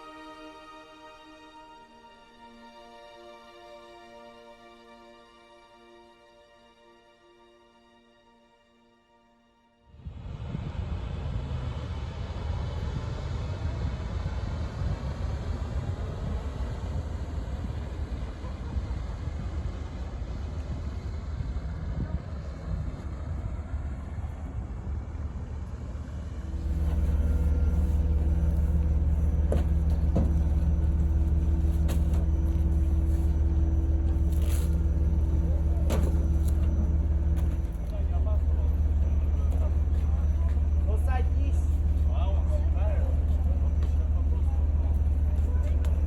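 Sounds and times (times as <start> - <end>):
ship engine rumbling: 10.0 - 46.0.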